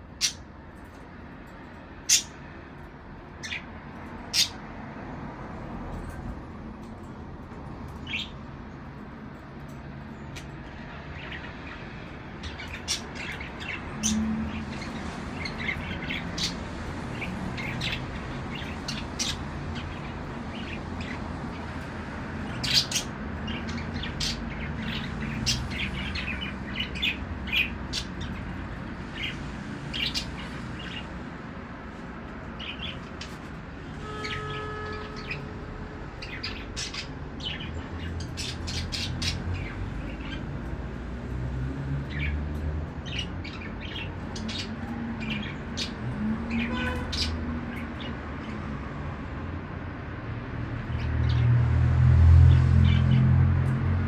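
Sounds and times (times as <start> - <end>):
budgerigars chirping: 2.1 - 2.4, 4.3 - 4.6, 12.4 - 16.6, 22.4 - 28.5.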